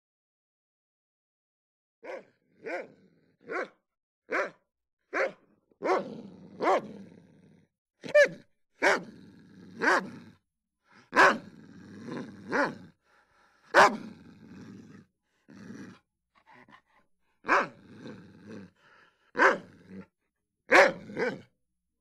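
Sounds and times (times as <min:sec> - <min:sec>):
dog barking: 0:02.0 - 0:07.0, 0:08.0 - 0:09.1, 0:09.8 - 0:10.2, 0:11.1 - 0:11.5, 0:12.5 - 0:12.8, 0:13.7 - 0:14.1, 0:17.4 - 0:17.8, 0:19.4 - 0:19.8, 0:20.7 - 0:21.5.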